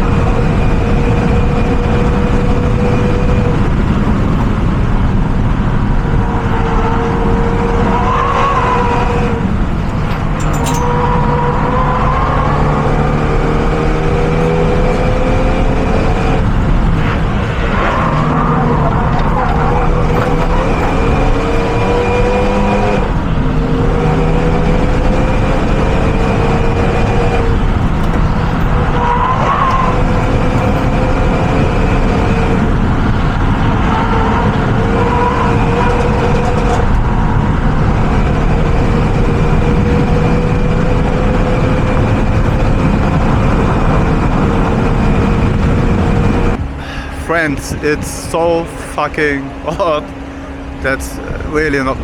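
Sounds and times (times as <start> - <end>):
car engine accelerating through gears: 0.0 - 48.6
road noise: 0.0 - 52.0.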